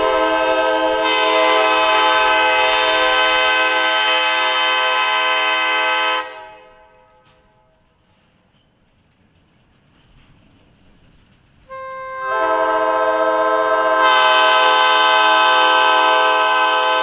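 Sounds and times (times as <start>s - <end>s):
locomotive air horn blast: 0.0s - 7.7s, 11.7s - 17.0s.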